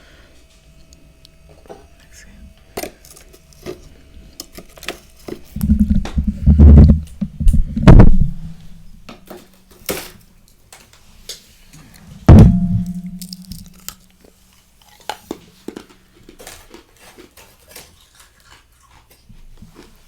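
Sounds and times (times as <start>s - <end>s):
rough scraping of freezer frost: 4.6s - 8.8s.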